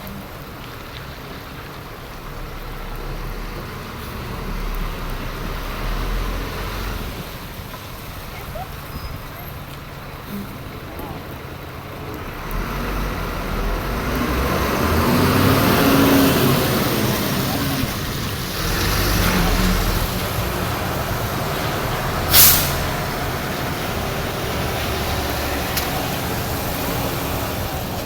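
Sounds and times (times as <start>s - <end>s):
fire engine running: 0.0s - 28.0s
air brakes hissing: 21.9s - 23.3s.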